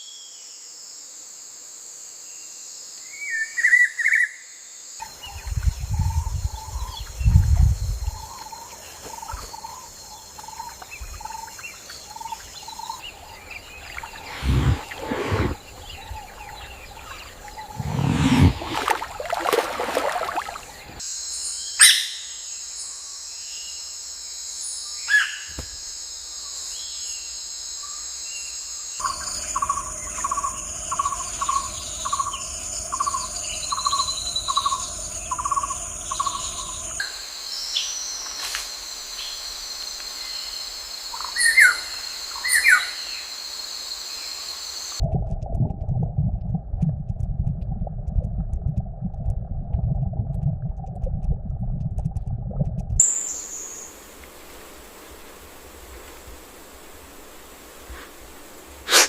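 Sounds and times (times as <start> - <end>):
high insect drone: 0.0 - 45.0
low rumbling noise: 14.2 - 16.3, 17.6 - 19.4, 45.0 - 53.0
wild birds calling: 29.0 - 37.0.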